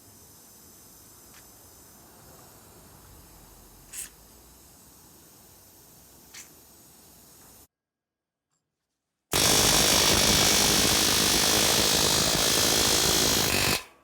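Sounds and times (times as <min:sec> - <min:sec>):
power tool running: 0:09.3 - 0:13.9.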